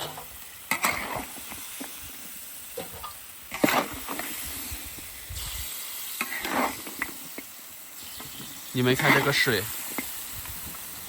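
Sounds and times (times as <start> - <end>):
metal spatula scraping a pan: 0.0 - 1.4, 2.8 - 4.5, 5.4 - 7.2, 8.0 - 9.6
meat hissing in a wok: 0.0 - 11.0.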